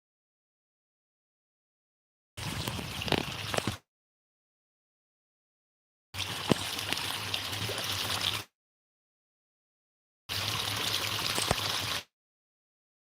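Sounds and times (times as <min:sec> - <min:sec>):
running water rushing: 0:02.4 - 0:03.8, 0:06.2 - 0:08.5, 0:10.3 - 0:12.1.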